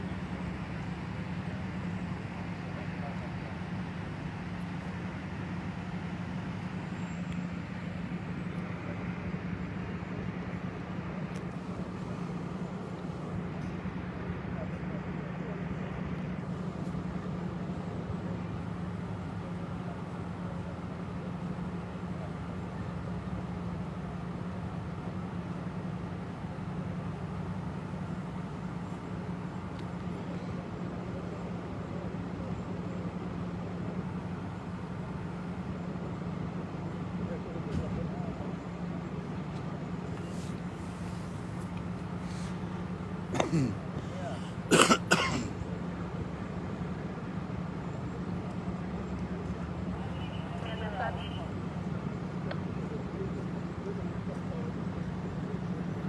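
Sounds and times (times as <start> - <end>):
vehicle engine idling: 0.0 - 44.8
road noise: 0.0 - 56.0.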